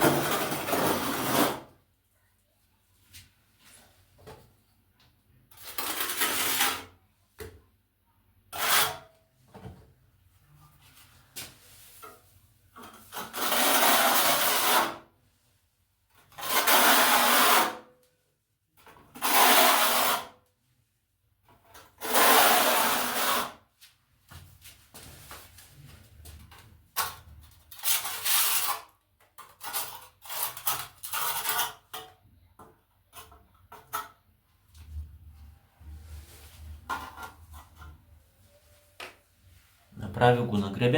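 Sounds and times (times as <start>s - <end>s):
trowel scraping on tiles: 0.0s - 1.7s, 5.5s - 7.0s, 8.5s - 9.2s, 12.8s - 15.1s, 16.2s - 17.9s, 18.8s - 20.4s, 21.7s - 23.6s, 27.0s - 32.2s.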